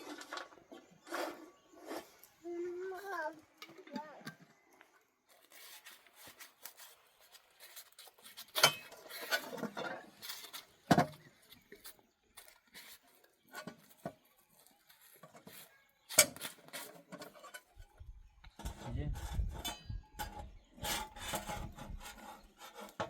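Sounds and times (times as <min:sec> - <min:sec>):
objects knocking and clattering: 0:08.3 - 0:11.7.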